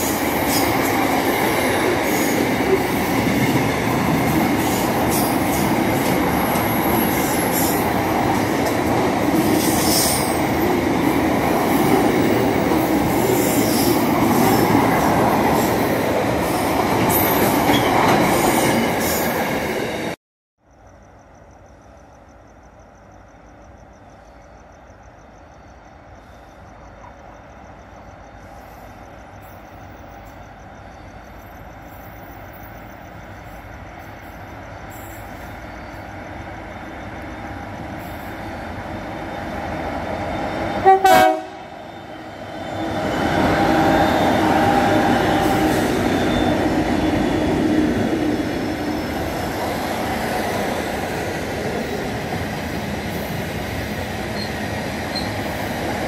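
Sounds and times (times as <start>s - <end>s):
train wheels rumbling on rails: 0.0s - 20.2s, 24.9s - 56.0s
train horn blast: 40.8s - 41.9s.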